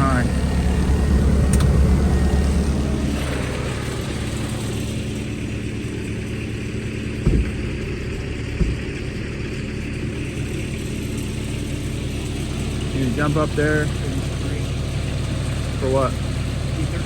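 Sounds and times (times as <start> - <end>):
engine idling: 0.0 - 17.0
short knocks: 7.2 - 9.4.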